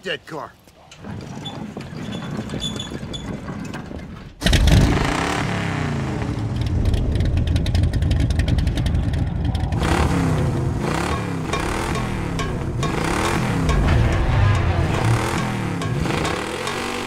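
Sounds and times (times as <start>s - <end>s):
car engine revving: 4.4s - 17.0s
car engine starting: 4.4s - 17.0s.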